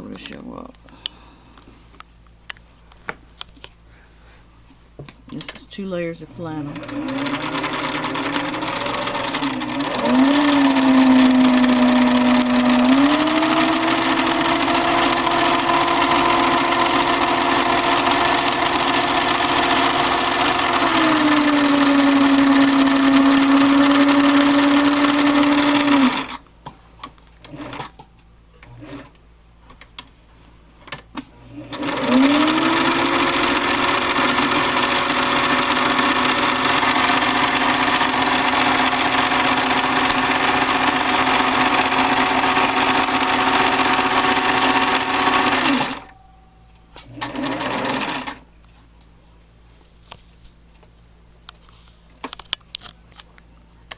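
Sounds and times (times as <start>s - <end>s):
sewing machine running: 6.6s - 26.4s, 31.5s - 46.1s, 47.1s - 48.4s.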